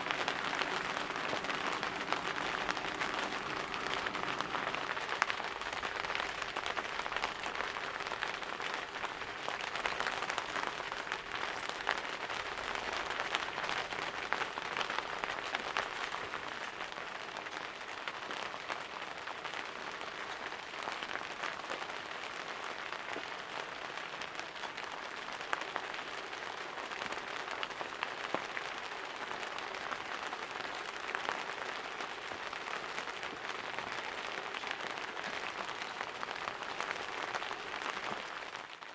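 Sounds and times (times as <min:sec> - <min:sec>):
sharp water drips: 0:00.0 - 0:17.7
steady rain falling: 0:00.0 - 0:38.9.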